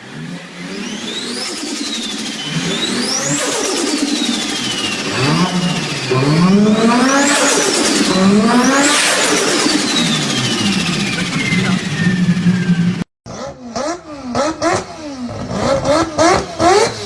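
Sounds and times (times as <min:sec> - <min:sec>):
car engine revving: 0:00.0 - 0:17.0
high whine: 0:00.8 - 0:13.1.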